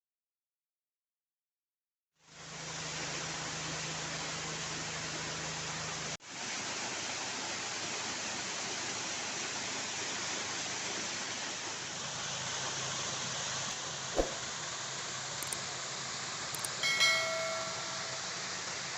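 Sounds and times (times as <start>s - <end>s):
short knock: 14.2s - 14.4s.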